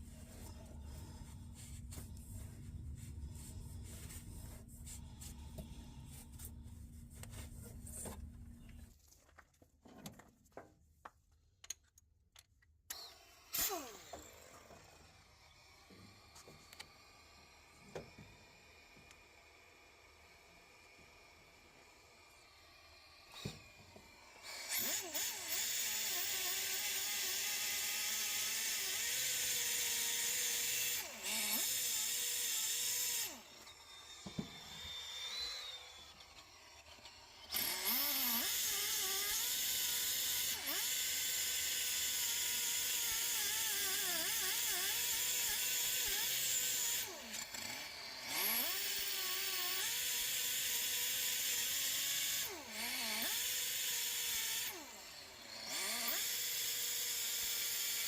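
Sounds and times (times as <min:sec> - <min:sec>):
handheld power tool running: 0:12.9 - 0:58.0.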